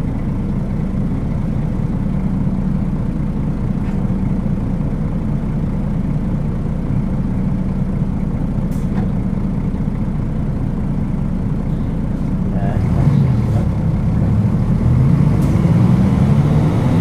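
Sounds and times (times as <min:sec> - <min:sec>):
bus diesel engine droning: 0:00.0 - 0:17.0.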